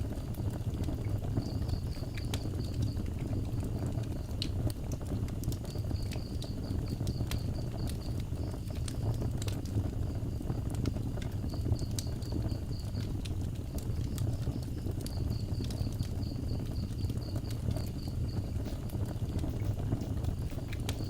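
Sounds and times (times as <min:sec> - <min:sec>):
low steady rumble: 0:00.0 - 0:21.0
wood fire crackling and popping: 0:00.0 - 0:21.0
insect chirping in rapid pulses: 0:01.3 - 0:03.1, 0:13.6 - 0:21.0.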